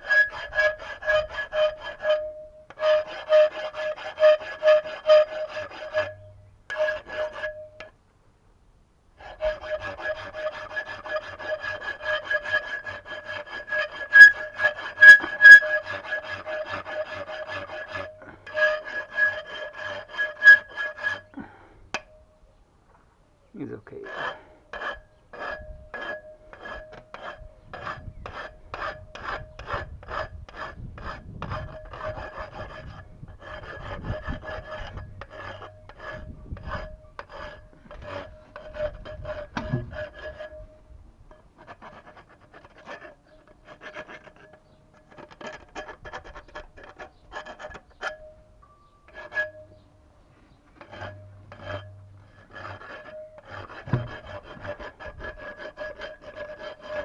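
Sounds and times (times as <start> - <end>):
saw rasping on metal: 0.0 - 7.9, 9.2 - 22.2, 23.9 - 48.4, 49.1 - 49.8, 50.8 - 57.0.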